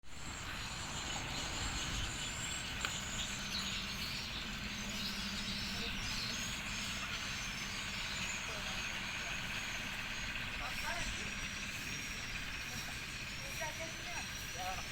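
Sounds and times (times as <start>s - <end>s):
birds chirping: 0.0s - 14.9s
faint low motor hum: 0.1s - 14.9s
insects chirping: 0.1s - 14.9s
steady background noise: 0.1s - 14.9s.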